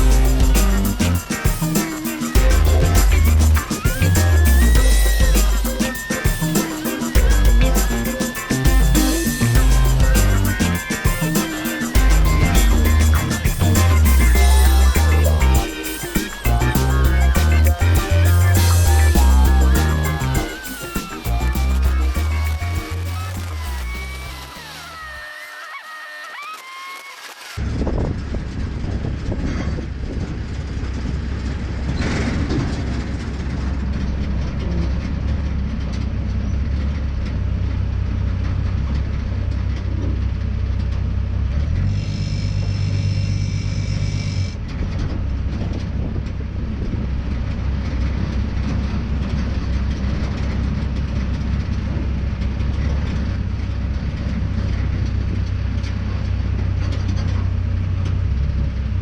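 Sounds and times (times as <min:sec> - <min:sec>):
higher-pitched tone: 0:00.0 - 0:27.3
truck engine and road noise: 0:27.6 - 0:59.0.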